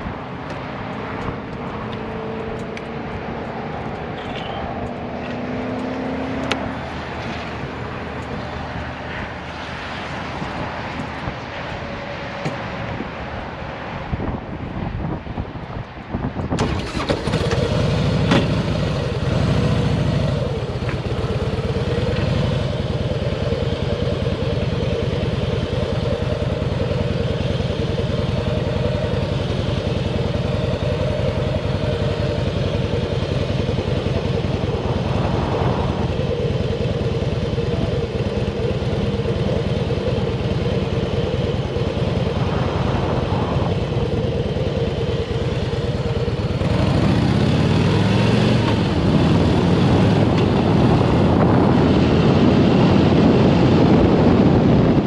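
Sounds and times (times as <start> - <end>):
motorcycle engine running: 16.6 - 55.0.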